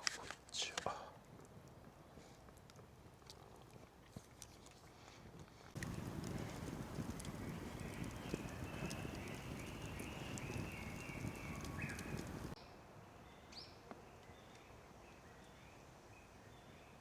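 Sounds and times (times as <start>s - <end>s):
low rustling: 5.8s - 12.6s
short high chirping calls: 7.3s - 12.5s.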